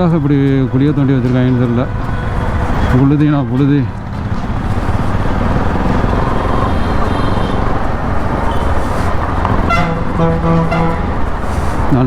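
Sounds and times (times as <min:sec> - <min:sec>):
motorcycle engine rumble: 0:00.0 - 0:12.0
road and wind noise: 0:00.0 - 0:12.0
vehicle horn honking: 0:06.4 - 0:11.4.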